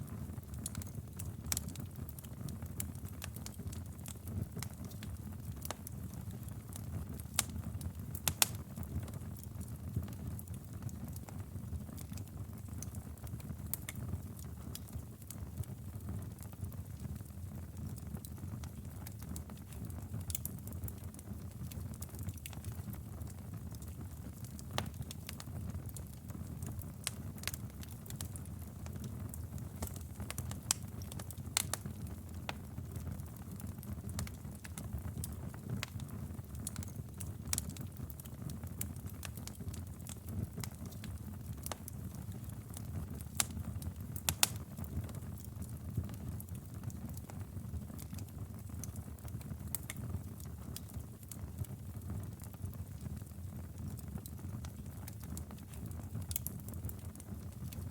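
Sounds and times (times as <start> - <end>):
wood crackling and popping: 0.0 - 57.9
fire rumbling: 21.9 - 57.9.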